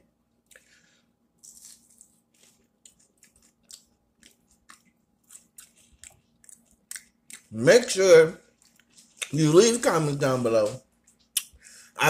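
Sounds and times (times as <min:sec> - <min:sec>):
person chewing food: 0:01.4 - 0:07.6, 0:08.4 - 0:09.6, 0:11.0 - 0:11.6.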